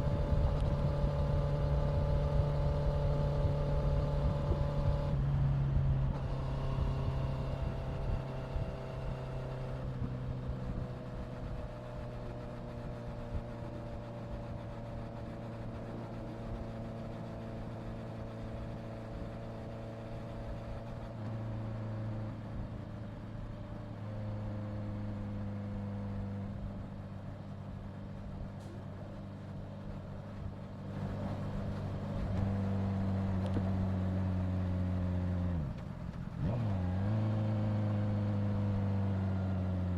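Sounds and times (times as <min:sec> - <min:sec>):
wind rumble on microphone: 0:00.0 - 0:14.7
motorcycle engine cruising: 0:00.0 - 0:39.9.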